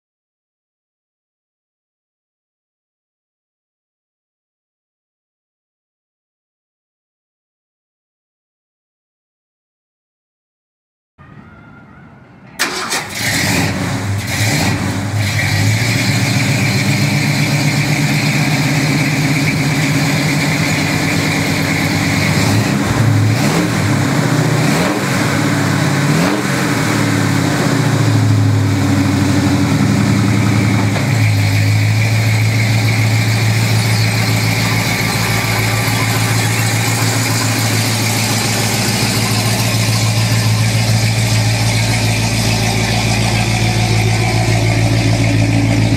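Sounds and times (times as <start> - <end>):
engine idling and revving: 12.6 - 45.9.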